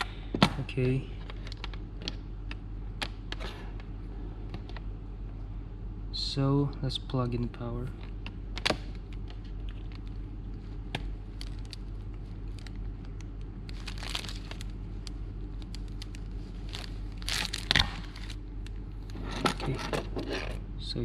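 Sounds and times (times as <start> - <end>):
steady low hum: 0.0 - 21.0
cord rustling: 9.0 - 18.4.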